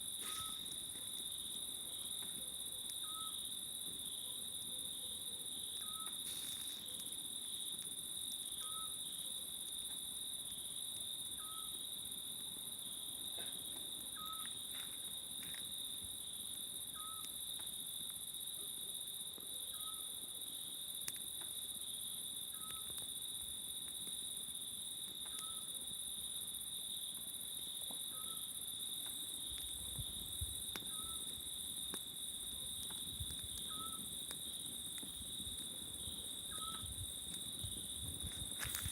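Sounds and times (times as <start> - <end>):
crickets and cicadas trilling: 0.0 - 38.9
faint campfire crackles: 0.0 - 38.9.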